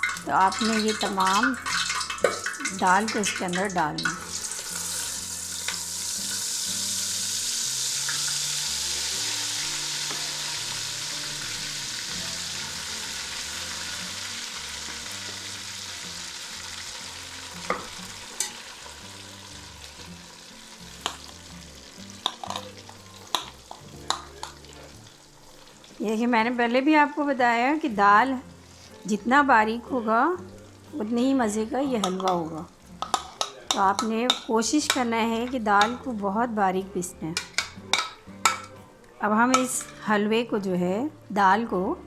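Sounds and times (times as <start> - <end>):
paste sizzling in hot oil: 0.0 - 26.2, 27.7 - 29.3, 29.9 - 36.2, 37.4 - 38.9
spoon knocking against pot: 32.0 - 35.1, 37.4 - 38.8.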